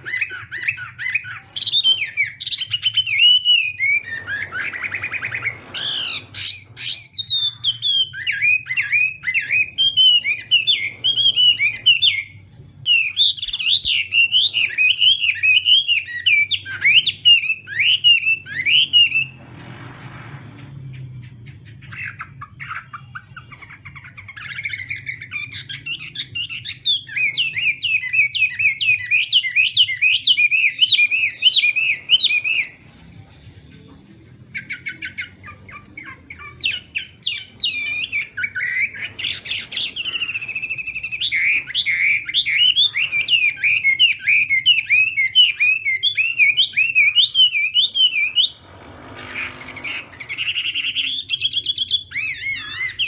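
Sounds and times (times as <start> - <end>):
bird singing whistled notes: 0.0 - 19.4, 21.0 - 32.9, 34.6 - 48.6, 49.6 - 53.0
faint low hum: 31.6 - 44.4.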